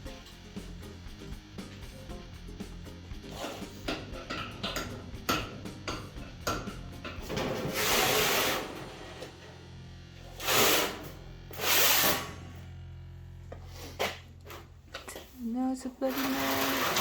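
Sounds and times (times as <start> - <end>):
background music: 0.0 - 8.8
steady low hum: 0.0 - 16.4
loud bursts of hiss: 7.6 - 8.7, 10.4 - 11.0, 11.6 - 12.4.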